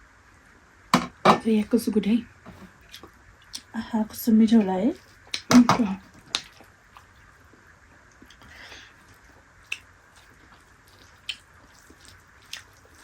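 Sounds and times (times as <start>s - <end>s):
quiet chewing: 2.5s - 3.7s, 4.9s - 13.0s
wet mouth clicks: 9.7s - 9.9s.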